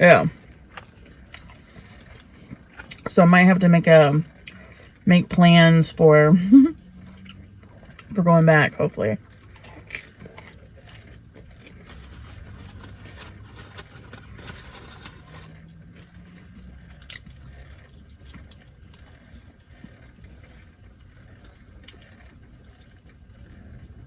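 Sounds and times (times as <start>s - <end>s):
low rumble of vehicles: 0.0s - 24.0s
person chewing food: 0.4s - 3.0s, 6.7s - 8.1s, 9.2s - 24.0s.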